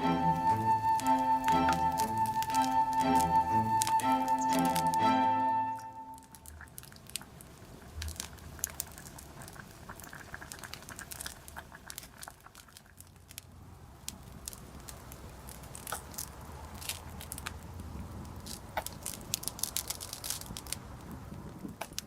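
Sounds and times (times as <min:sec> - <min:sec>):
campfire crackling and popping: 0:00.0 - 0:05.2, 0:05.9 - 0:22.0.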